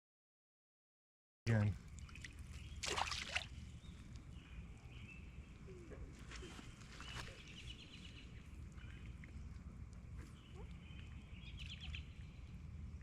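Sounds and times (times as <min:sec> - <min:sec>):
low steady rumble: 0:01.5 - 0:13.0
birds singing trilled phrases: 0:10.2 - 0:12.5.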